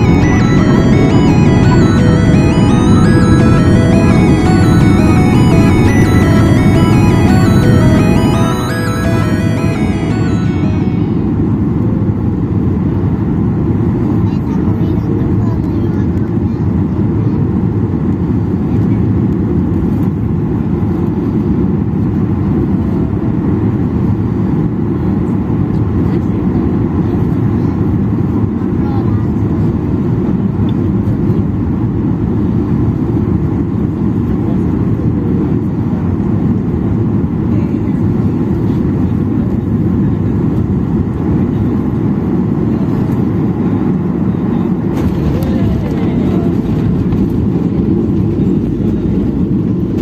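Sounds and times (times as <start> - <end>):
airplane engines rumbling: 27.8 - 50.0
airliner cabin engine rumble: 42.3 - 50.0.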